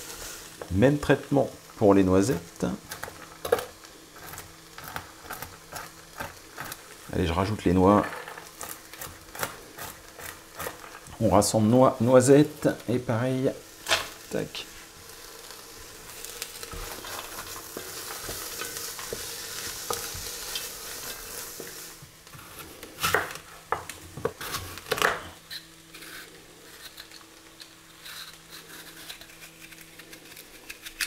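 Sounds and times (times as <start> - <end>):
vegetables sizzling in butter: 0.0 - 31.0
knife peeling apple: 8.5 - 11.4, 24.4 - 31.0.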